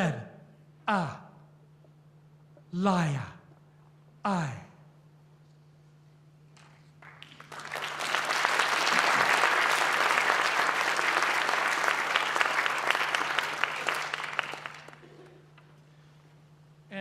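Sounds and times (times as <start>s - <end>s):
audience applauding: 7.0s - 15.3s.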